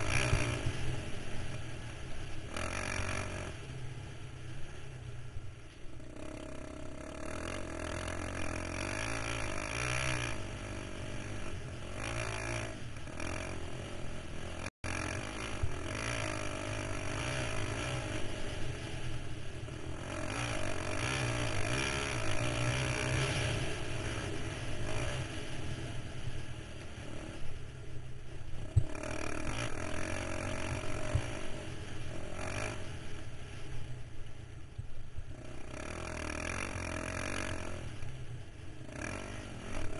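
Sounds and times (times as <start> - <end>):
quad engine revving: 0.0 - 1.6, 2.5 - 3.6, 5.9 - 25.9, 28.6 - 33.6, 35.2 - 38.2, 38.8 - 39.9.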